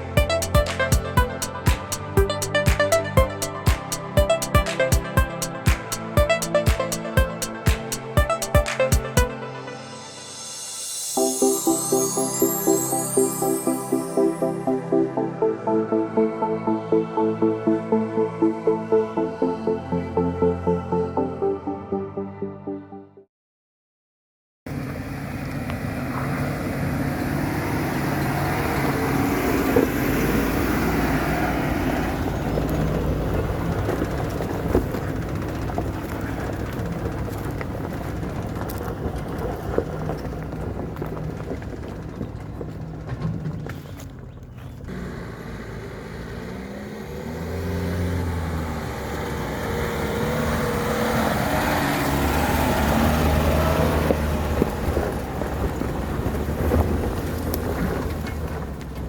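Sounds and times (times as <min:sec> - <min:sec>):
tyre and road noise: 0:24.7 - 0:59.0
vehicle engine under load: 0:24.7 - 0:59.0.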